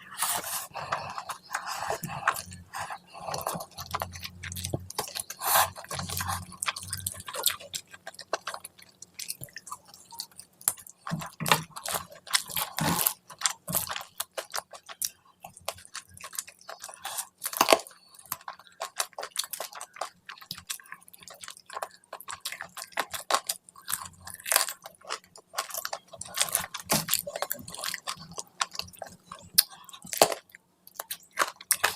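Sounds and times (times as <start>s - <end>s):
close-miked chewing: 0.0s - 31.9s.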